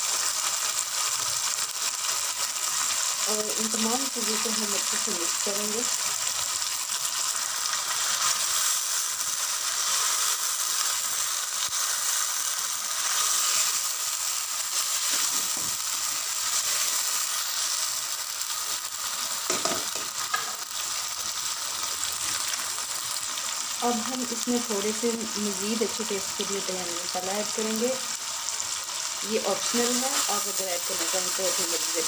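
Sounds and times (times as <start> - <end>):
meat and onions sizzling in oil: 0.0 - 32.0.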